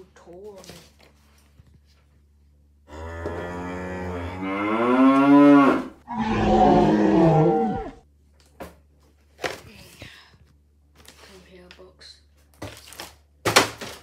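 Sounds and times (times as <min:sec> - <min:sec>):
electronic toy dinosaur roars: 0:02.9 - 0:08.0.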